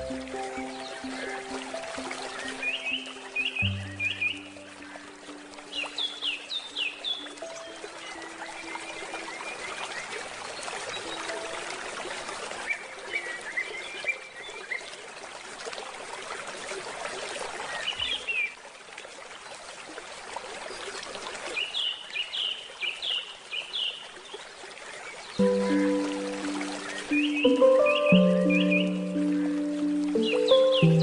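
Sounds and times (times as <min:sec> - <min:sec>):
small birds chirping: 0:00.0 - 0:09.7, 0:21.6 - 0:31.0
water trickling in a stream: 0:00.0 - 0:31.0.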